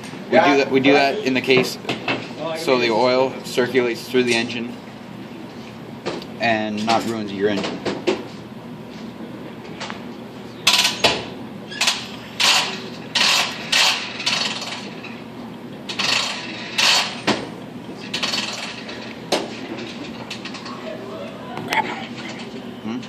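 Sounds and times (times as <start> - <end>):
objects clicking clattering and scraping: 18.0 - 20.8.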